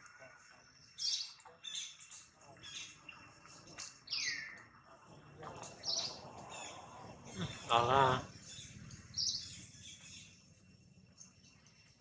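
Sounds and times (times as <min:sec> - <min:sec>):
birds chirping: 0:00.2 - 0:12.0.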